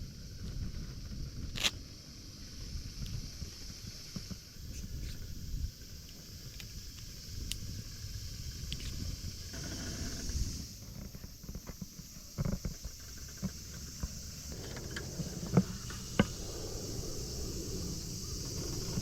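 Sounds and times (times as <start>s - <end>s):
low outdoor rumble: 12.9s - 19.0s.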